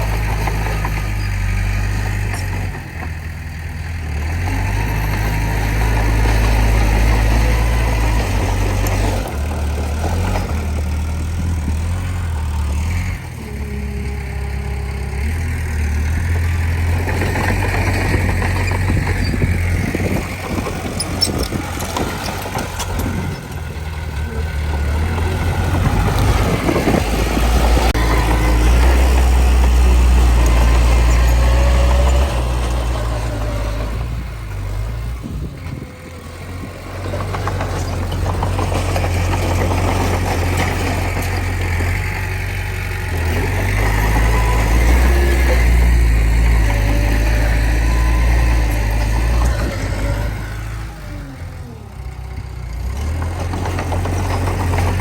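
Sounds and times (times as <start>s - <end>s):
bulldozer diesel engine running: 0.0s - 55.0s
knocks and rattles: 16.2s - 34.0s, 35.6s - 42.4s, 52.9s - 55.0s.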